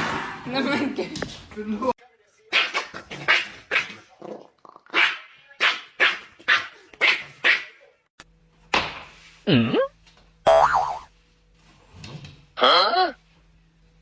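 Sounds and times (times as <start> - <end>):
dog barking: 2.5 - 4.0, 4.9 - 7.8.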